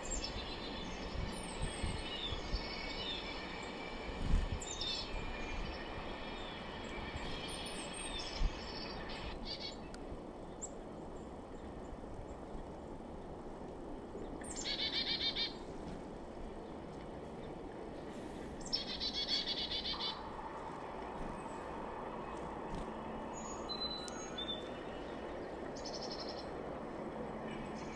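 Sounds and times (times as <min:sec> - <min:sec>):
outdoor background hiss: 0:00.0 - 0:27.9
chickadees calling: 0:18.6 - 0:20.3.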